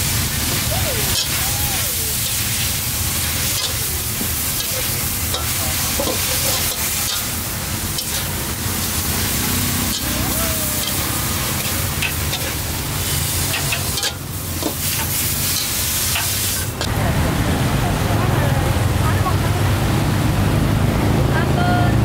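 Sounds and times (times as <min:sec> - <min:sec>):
food frying in hot oil: 0:00.0 - 0:16.9.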